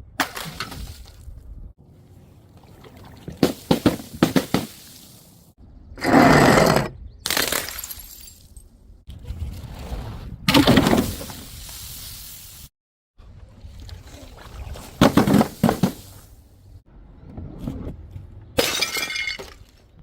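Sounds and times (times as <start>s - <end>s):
glass bottles smashing: 7.3s - 8.6s, 18.6s - 19.7s.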